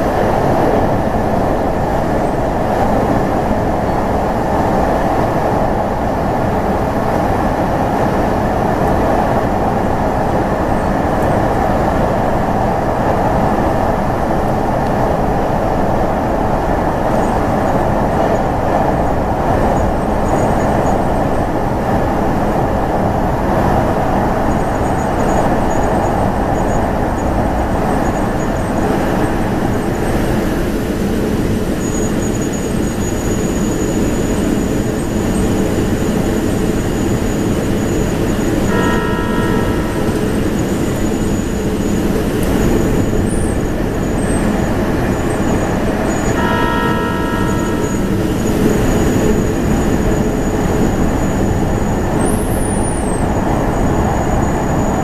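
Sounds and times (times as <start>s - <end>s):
train wheels rumbling on rail: 0.0s - 55.0s
multi-pitch tone: 38.7s - 41.6s, 46.3s - 49.5s.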